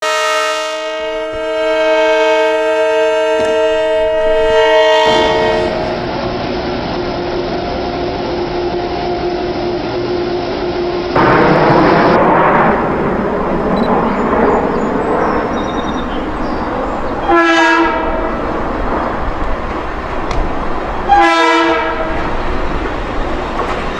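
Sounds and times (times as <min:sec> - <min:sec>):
locomotive air horn chord: 0:00.0 - 0:06.1, 0:17.2 - 0:18.4, 0:21.0 - 0:22.3
passing train rumble: 0:00.0 - 0:23.9.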